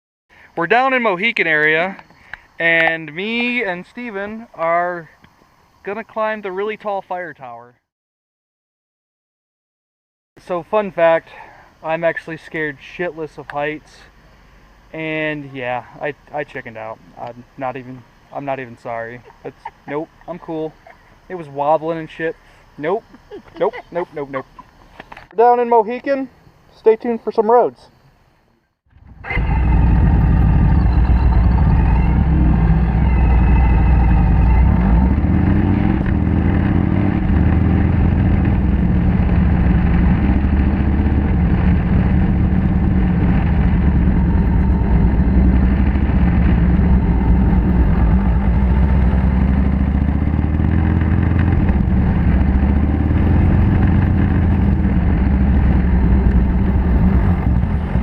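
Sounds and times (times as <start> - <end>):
motorcycle engine running: 28.9 - 58.0.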